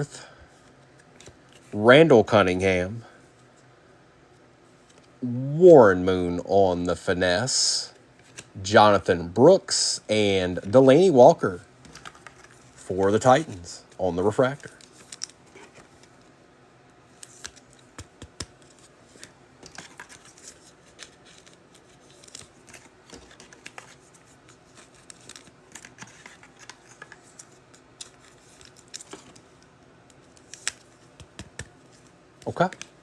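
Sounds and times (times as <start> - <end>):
cards and wrappers handled: 11.8 - 16.3, 17.1 - 33.0.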